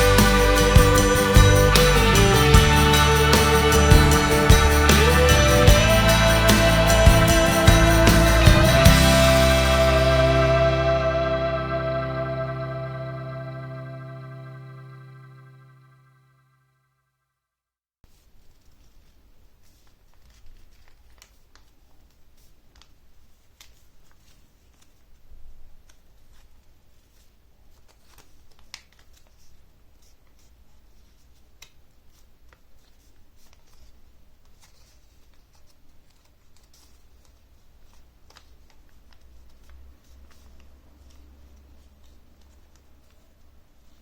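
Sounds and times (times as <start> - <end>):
paper folding and creasing: 18.1 - 44.0.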